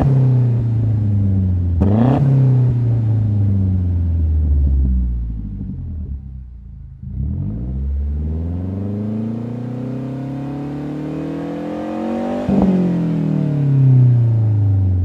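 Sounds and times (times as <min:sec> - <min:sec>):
car engine revving: 0:00.0 - 0:15.0
exhaust crack: 0:02.7 - 0:08.2.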